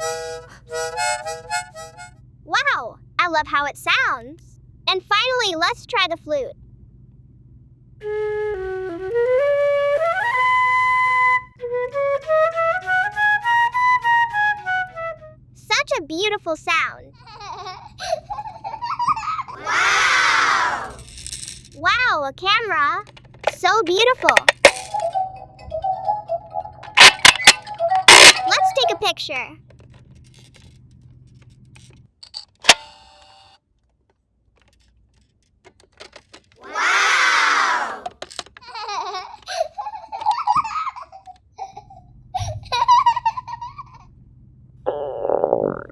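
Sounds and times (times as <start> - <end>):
flute playing a tune: 0.0 - 2.1, 8.0 - 15.4, 24.9 - 29.0
short electronic beep: 26.9 - 28.9
toy camera shutter click: 27.0 - 28.8, 32.6 - 33.5.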